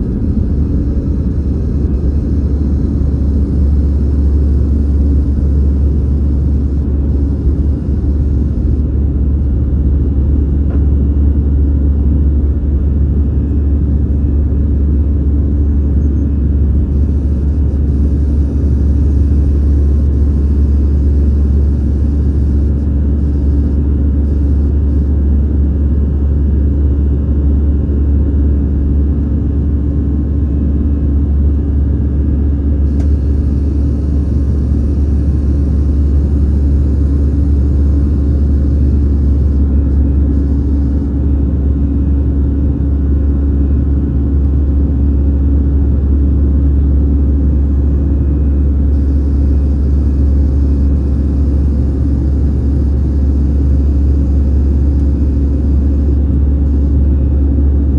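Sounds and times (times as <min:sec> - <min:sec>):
jet engines roaring on takeoff: 0:00.0 - 0:11.7, 0:32.8 - 0:41.4.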